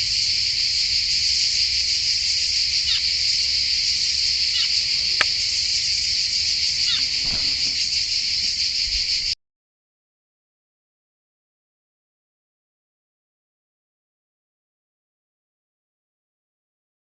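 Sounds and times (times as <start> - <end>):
high-pitched insect chorus: 0.0 - 9.4.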